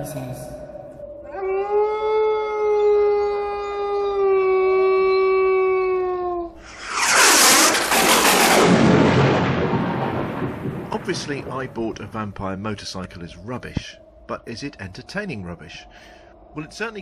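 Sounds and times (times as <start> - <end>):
long steady howl: 0.0 - 6.6
sudden loud burst of noise: 6.6 - 12.0.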